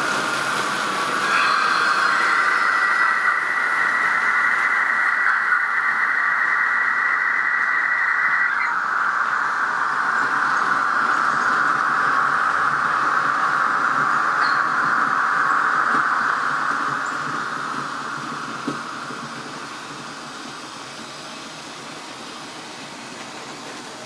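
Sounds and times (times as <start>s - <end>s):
model locomotive hissing sound: 0.0s - 24.0s
thin high tone: 0.4s - 11.6s.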